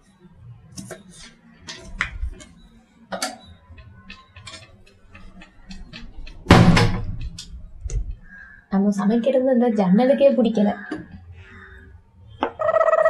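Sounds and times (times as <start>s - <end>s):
sharp knock: 6.5s - 7.4s.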